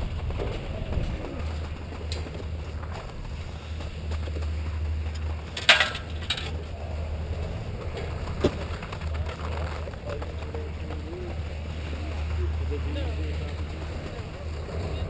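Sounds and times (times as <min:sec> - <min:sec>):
skis running over snow: 0:00.0 - 0:15.0
wind rumbling on microphone: 0:00.0 - 0:15.0.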